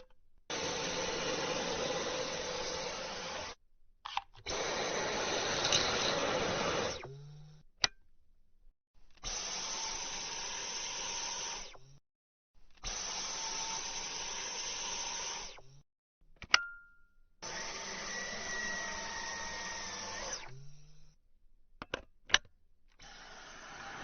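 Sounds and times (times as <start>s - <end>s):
stick vacuum cleaner whirring: 0.5s - 3.6s, 4.5s - 7.1s, 23.0s - 24.0s.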